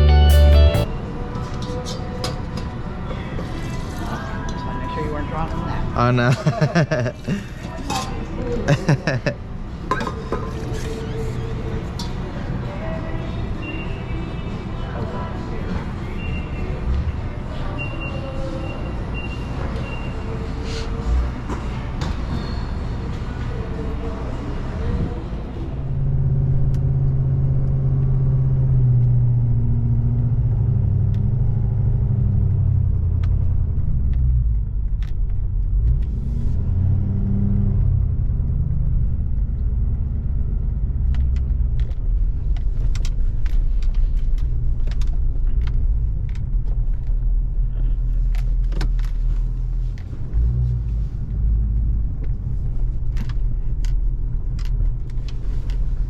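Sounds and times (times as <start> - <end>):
vehicle engine running: 0.0 - 0.9, 23.5 - 56.0.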